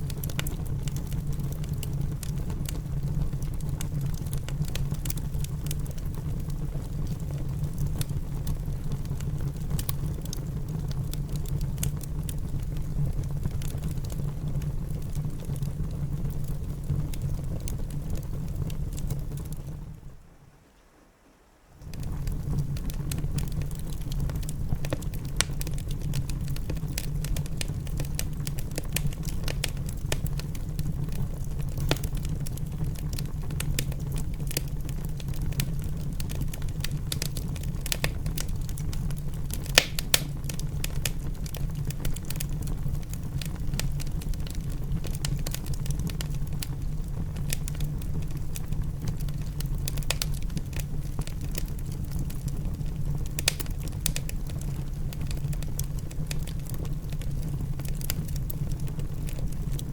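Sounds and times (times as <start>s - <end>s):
wood fire crackling: 0.0s - 20.4s, 21.6s - 59.9s
sharp pop of fire: 39.6s - 40.4s.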